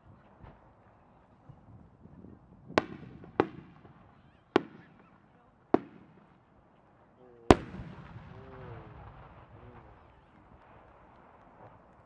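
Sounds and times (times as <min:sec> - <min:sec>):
firework shells bursting: 0:05.7 - 0:06.3.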